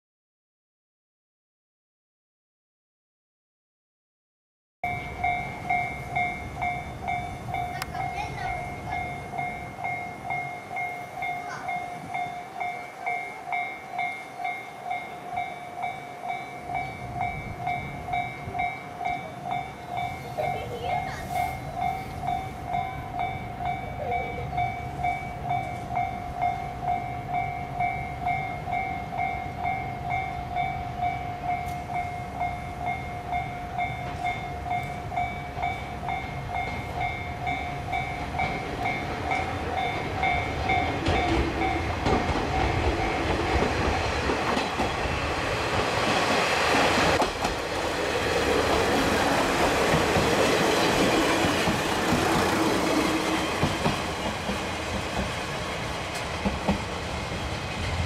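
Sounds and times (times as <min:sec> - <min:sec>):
diesel train approaching: 0:04.8 - 0:58.0
level crossing bell dinging: 0:04.9 - 0:42.0
train wheel clatter: 0:33.7 - 0:58.0.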